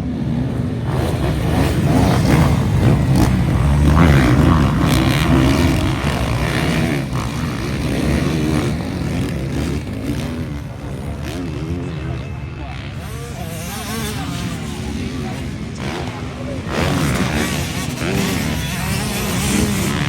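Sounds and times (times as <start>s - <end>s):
motocross bikes revving: 0.0s - 20.0s.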